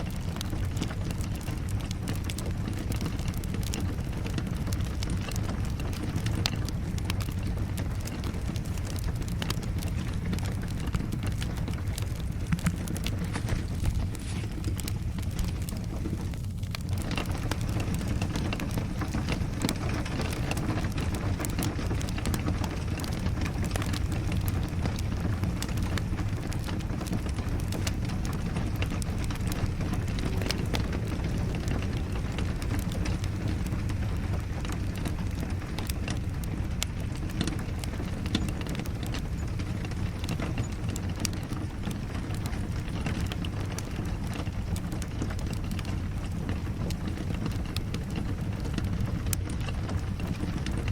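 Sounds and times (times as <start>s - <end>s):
rain falling: 0.0s - 50.9s
wood fire crackling: 0.0s - 50.9s.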